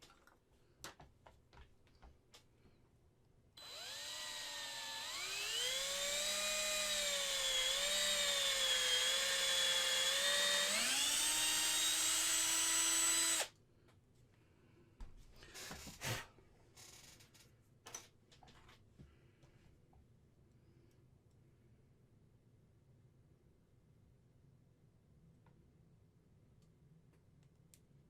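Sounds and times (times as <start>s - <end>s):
small electric drill whining: 3.6s - 13.5s.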